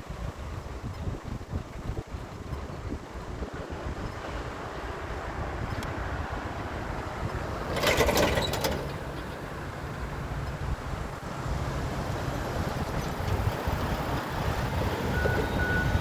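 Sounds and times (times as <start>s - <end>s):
low vehicle engine rumble: 0.0s - 16.0s
wind buffeting microphone: 0.0s - 16.0s
rattling clatter: 7.1s - 10.6s.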